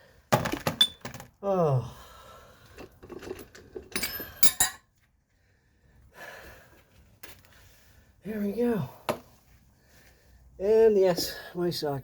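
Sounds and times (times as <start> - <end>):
metal parts clinking: 3.1 - 4.9.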